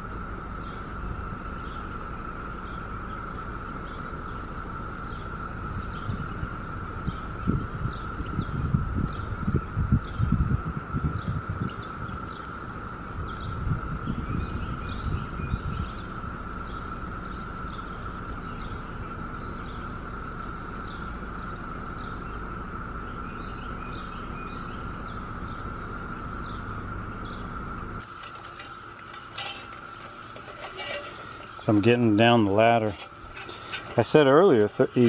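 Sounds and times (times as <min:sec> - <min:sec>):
wind on microphone: 0:05.7 - 0:12.3, 0:13.1 - 0:16.0
metal ladder clicks and rattles: 0:28.0 - 0:35.0.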